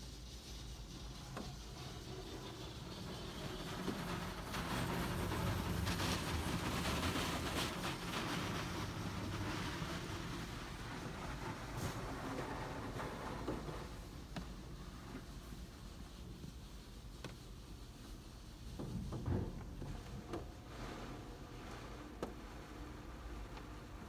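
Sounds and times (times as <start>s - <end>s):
car wash machinery rumbling: 0.0s - 24.0s.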